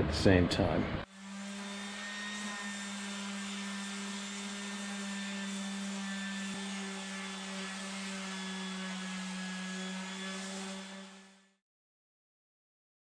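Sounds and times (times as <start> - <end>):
electric motor humming: 1.0 - 10.5.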